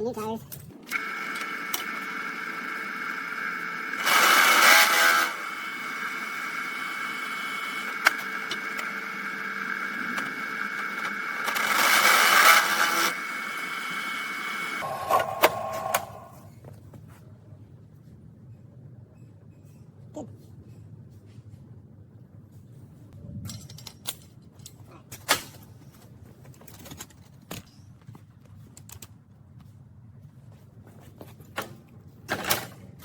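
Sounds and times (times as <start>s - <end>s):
small motor whining: 0.9s - 16.4s.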